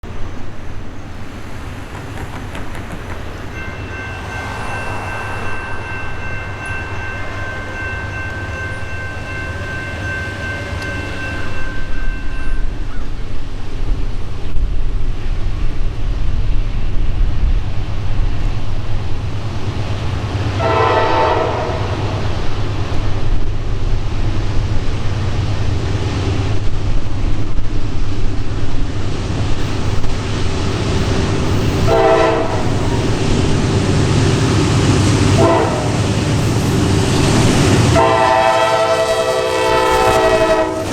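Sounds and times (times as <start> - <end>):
train cars rolling past: 0.0 - 40.9
train cars clattering: 0.1 - 14.4, 19.0 - 40.9
locomotive horn chord: 20.6 - 22.0, 31.8 - 33.0, 35.3 - 36.2, 37.8 - 40.9.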